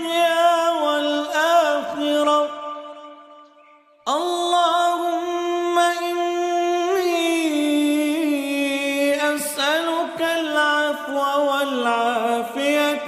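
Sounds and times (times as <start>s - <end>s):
person chanting: 0.0s - 13.0s.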